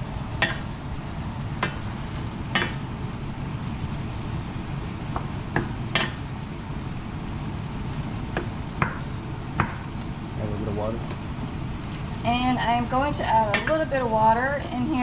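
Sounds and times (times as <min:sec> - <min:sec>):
vegetables cooking in sauce: 0:00.0 - 0:12.2
steady low rumble: 0:00.0 - 0:15.0
utensil knocking against pan: 0:02.5 - 0:02.8, 0:05.2 - 0:06.2.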